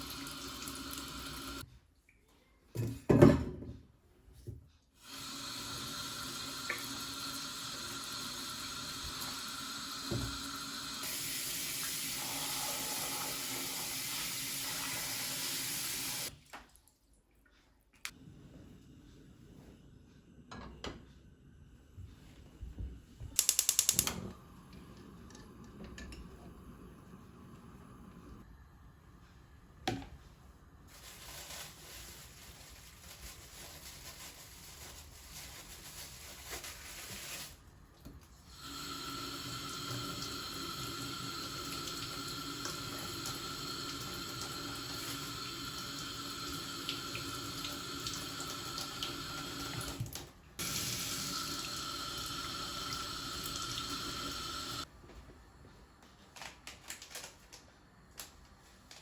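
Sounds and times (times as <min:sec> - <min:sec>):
tap water running into sink: 0:00.0 - 0:01.6, 0:05.1 - 0:16.3, 0:38.6 - 0:54.8.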